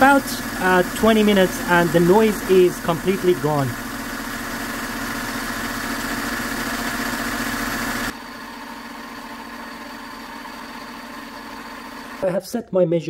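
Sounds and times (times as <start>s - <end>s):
steady hum: 0.0s - 8.2s
car engine idling: 0.0s - 12.2s.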